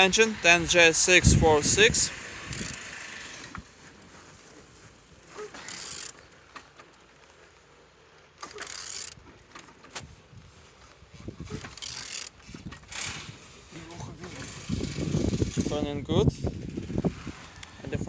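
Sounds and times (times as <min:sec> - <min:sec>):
engine turned over by hand: 0:00.0 - 0:07.1, 0:08.4 - 0:10.2, 0:11.4 - 0:18.0
mechanical clicks: 0:02.5 - 0:02.9, 0:08.4 - 0:09.2.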